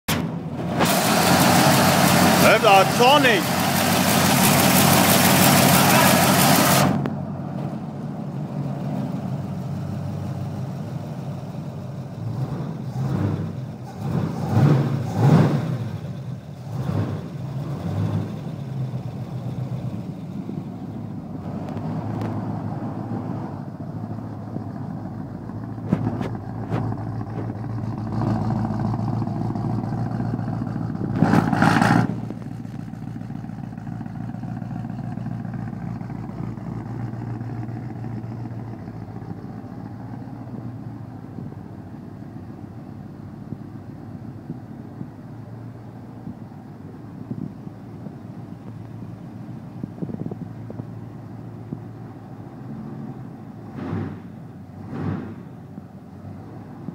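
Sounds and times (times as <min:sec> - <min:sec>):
car engine idling and revving: 0:00.0 - 0:56.9
loud hissing rush: 0:00.8 - 0:06.9.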